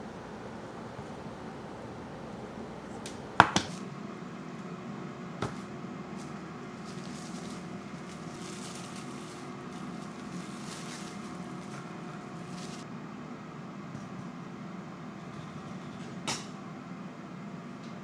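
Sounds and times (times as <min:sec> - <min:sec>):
sharp knocks of kitchenware: 0:00.0 - 0:03.7
steady hum: 0:00.0 - 0:03.7.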